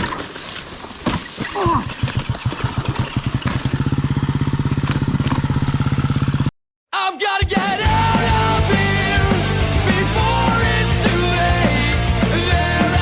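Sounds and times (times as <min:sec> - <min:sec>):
motorcycle engine running: 0:01.7 - 0:06.5, 0:07.8 - 0:13.0.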